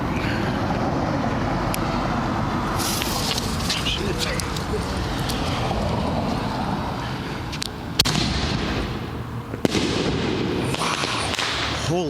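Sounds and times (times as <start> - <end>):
firework hissing: 2.7 - 5.7, 8.0 - 12.0
firework booms: 8.0 - 12.0.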